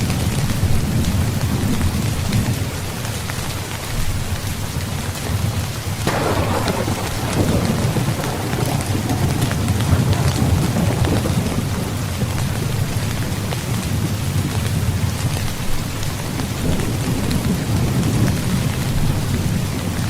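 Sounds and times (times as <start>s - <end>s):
heavy rain falling: 0.0s - 20.0s
low rumble of thunder: 6.0s - 20.0s.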